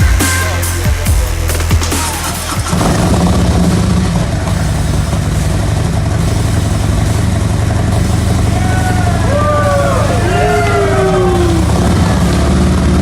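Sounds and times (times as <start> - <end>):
motorcycle engine idling: 2.0 - 13.0.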